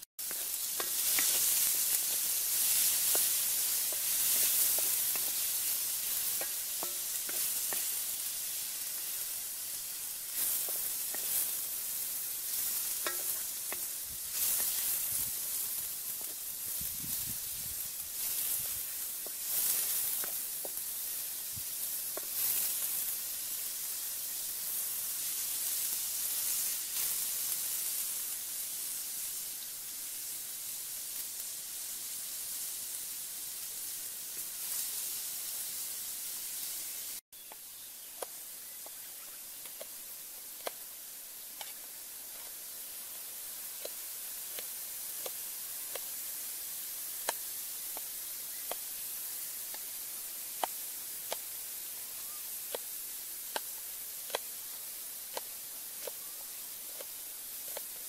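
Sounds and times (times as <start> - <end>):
grubs sizzling in a wok: 0.0 - 58.0
quiet hiss: 0.0 - 58.0
spatula scraping and knocking: 13.0 - 14.8.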